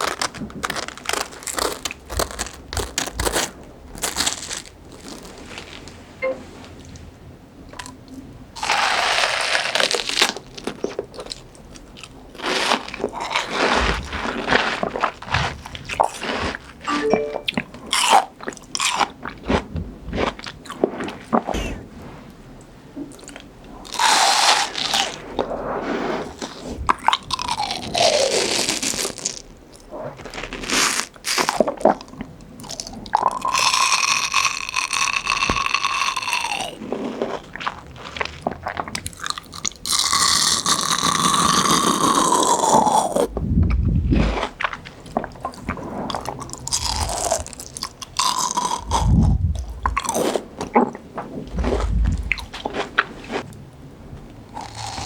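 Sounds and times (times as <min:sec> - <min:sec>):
fruit crunching and chewing: 0:00.0 - 0:05.9, 0:08.6 - 0:16.9, 0:17.9 - 0:21.8, 0:26.4 - 0:53.6, 0:54.5 - 0:55.0
high squeaky tone: 0:06.2 - 0:06.5, 0:16.9 - 0:17.6.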